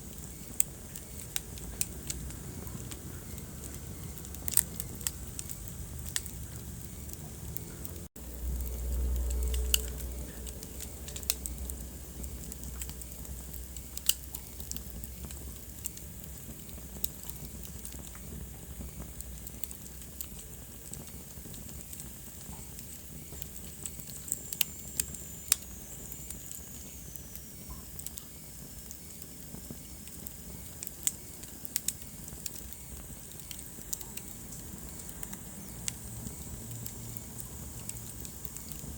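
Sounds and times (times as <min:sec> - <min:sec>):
wood fire crackling: 0:00.0 - 0:38.9
low rumble: 0:01.6 - 0:15.6.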